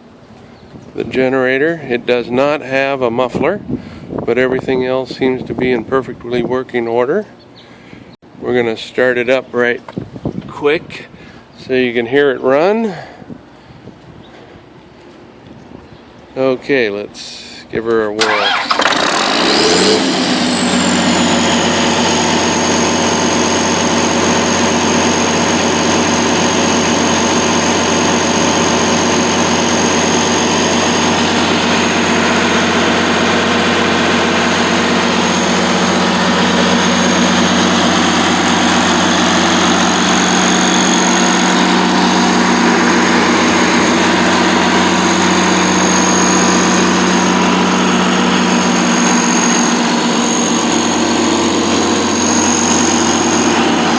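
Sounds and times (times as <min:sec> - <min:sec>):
diesel generator running: 0:00.0 - 0:53.9
high whine: 0:18.2 - 0:53.9.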